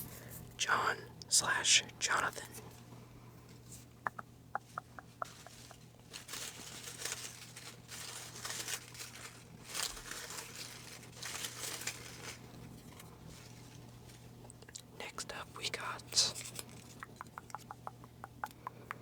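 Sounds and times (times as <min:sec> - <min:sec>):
paper rustling and crinkling: 0:05.0 - 0:14.4, 0:16.1 - 0:17.0.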